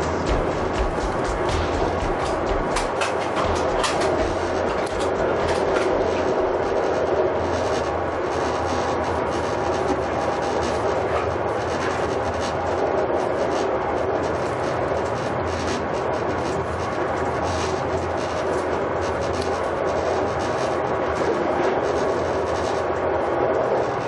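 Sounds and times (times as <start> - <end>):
train wheels rumbling on rails: 0.0 - 8.1.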